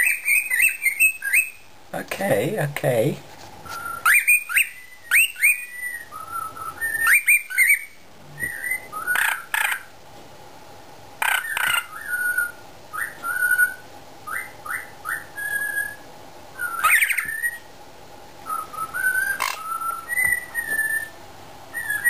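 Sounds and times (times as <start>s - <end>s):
cockatiel whistling: 0.0s - 1.6s, 3.7s - 9.8s, 11.2s - 16.0s, 16.6s - 17.7s, 18.4s - 22.0s.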